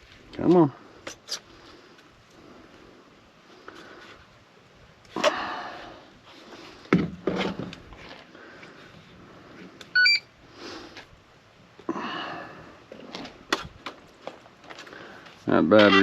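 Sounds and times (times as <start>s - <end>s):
high electronic beeps: 10.0s - 10.2s.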